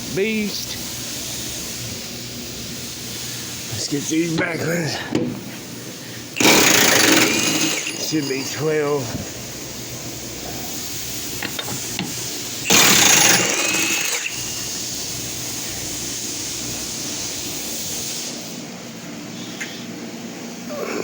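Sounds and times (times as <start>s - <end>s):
steady hum: 0.0s - 21.0s
impact wrench hammering: 6.4s - 9.3s, 11.4s - 14.6s.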